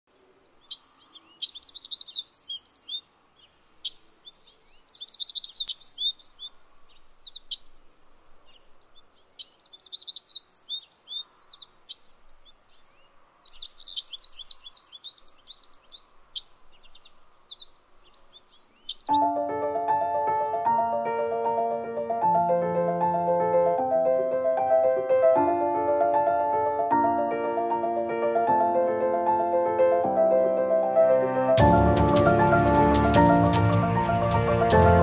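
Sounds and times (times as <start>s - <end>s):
songbirds twittering: 0.1s - 19.3s.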